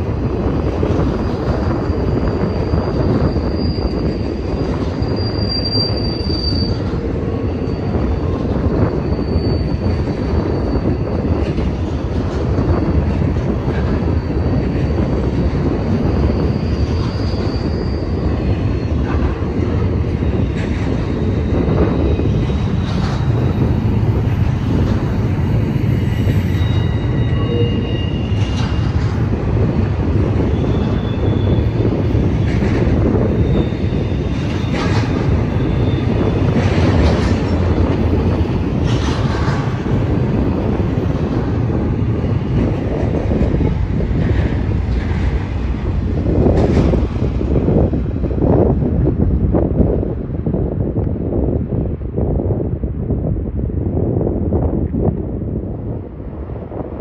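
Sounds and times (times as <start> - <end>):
train wheels rumbling on rails: 0.0 - 57.0
high wheel squeals: 0.9 - 11.8, 12.6 - 29.0, 29.6 - 39.0.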